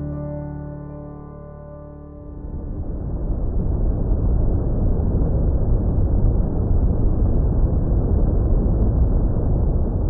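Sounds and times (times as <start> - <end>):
wind buffeting microphone: 2.6 - 10.0.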